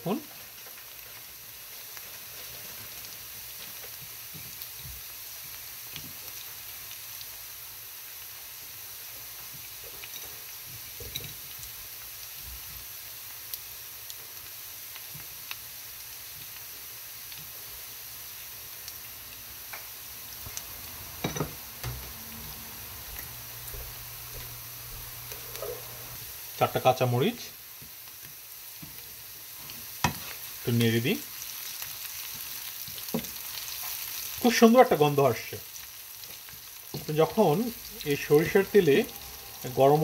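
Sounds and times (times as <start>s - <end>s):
onions sizzling in oil: 0.0s - 40.0s.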